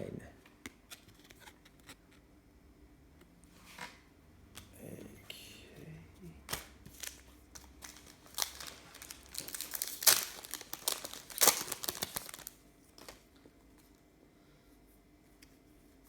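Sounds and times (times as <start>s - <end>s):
plastic wrapper crinkling: 6.5s - 13.4s.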